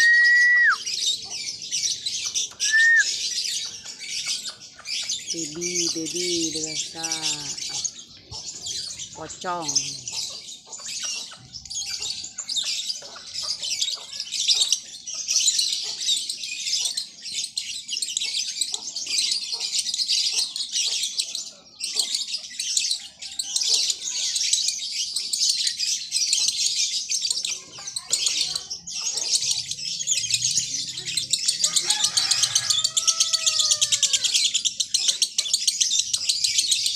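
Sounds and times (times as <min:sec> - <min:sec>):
lovebird chattering song: 0:00.0 - 0:23.4.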